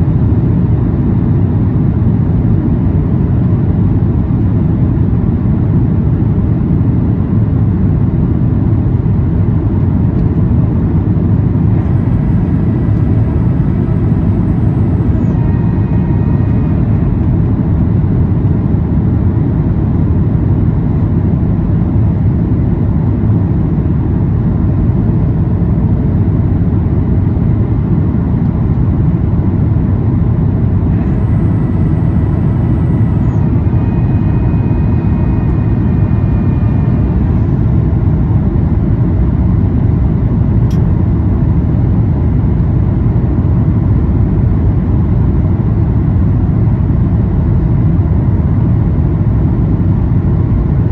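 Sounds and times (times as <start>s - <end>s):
airplane cabin rumble while taxiing: 0.0s - 50.9s
faint high whines: 10.2s - 19.5s, 25.9s - 40.9s.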